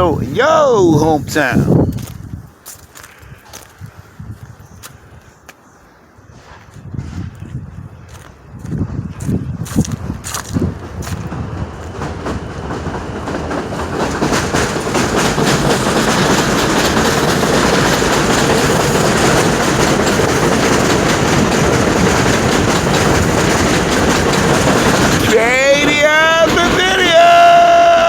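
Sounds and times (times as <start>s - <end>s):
subway train passing: 0.0s - 2.6s, 7.7s - 28.0s
train wheel clatter: 8.8s - 28.0s.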